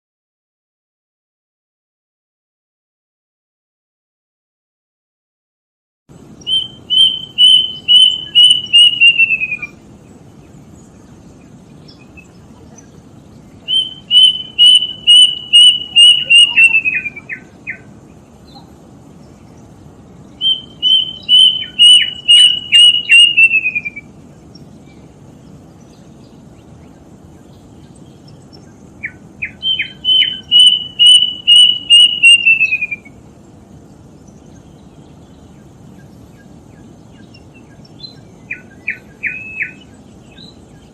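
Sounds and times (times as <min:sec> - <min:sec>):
cuckoo whistling song: 0:06.4 - 0:09.8, 0:13.6 - 0:17.9, 0:20.4 - 0:24.2, 0:28.6 - 0:33.2, 0:37.2 - 0:40.9.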